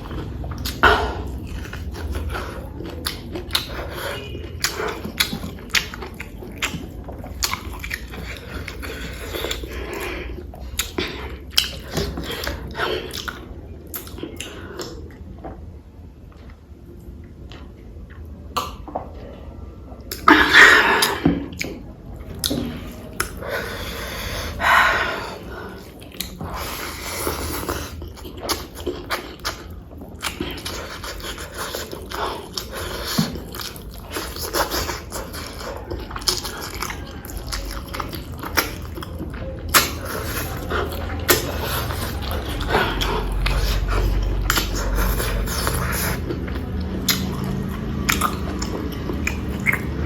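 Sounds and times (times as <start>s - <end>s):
person chewing food: 0.0s - 15.6s, 20.1s - 50.0s
wet smacking clicks: 47.0s - 50.0s.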